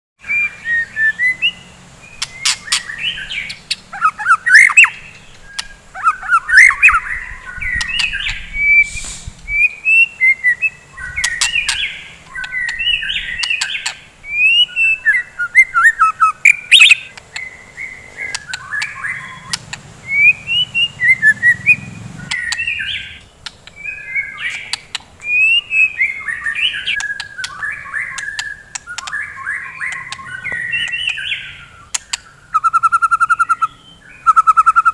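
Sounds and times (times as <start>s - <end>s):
bird singing whistled song: 0.2s - 34.9s
sharp clicks: 22.2s - 23.9s, 24.5s - 25.3s, 26.8s - 31.3s, 31.9s - 32.3s.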